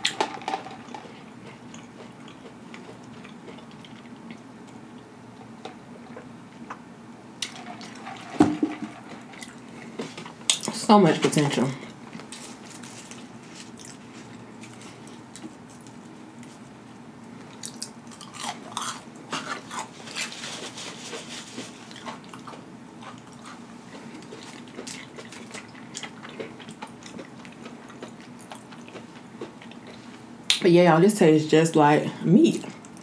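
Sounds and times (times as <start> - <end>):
crunchy chewing: 0.8 - 6.8, 12.1 - 16.8, 17.4 - 30.3.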